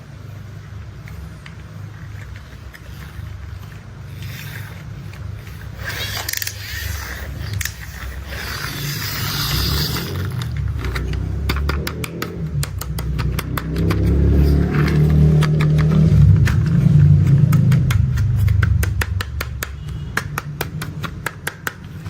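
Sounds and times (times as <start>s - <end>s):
plastic toys scraping and rolling: 0.3s - 22.0s
tapping clicks: 10.4s - 22.0s.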